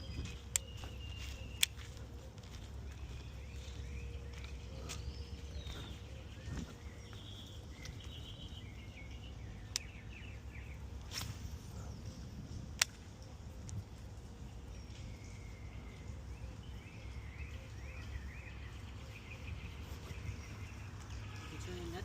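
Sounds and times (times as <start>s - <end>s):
faint bird chirps: 0.0s - 12.4s
sharp clicks: 12.7s - 13.8s.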